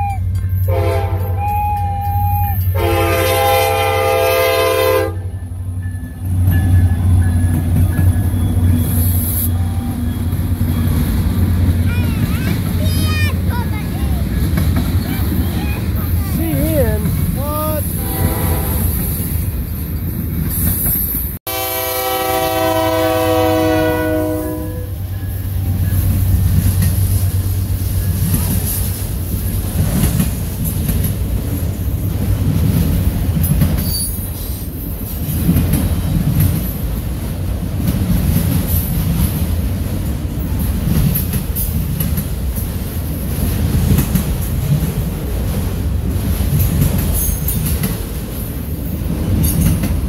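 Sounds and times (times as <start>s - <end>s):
train wheels rumbling and clattering: 0.0s - 21.4s, 22.5s - 50.0s
locomotive horn chord: 0.6s - 1.6s, 2.7s - 5.5s, 18.0s - 19.0s, 21.5s - 25.1s.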